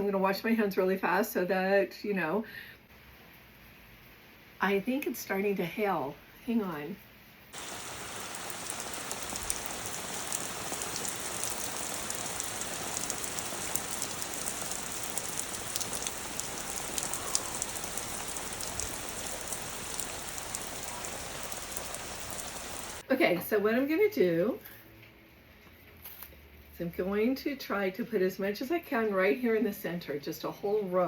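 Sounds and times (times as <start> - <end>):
heavy rain and hail: 7.6 - 23.0.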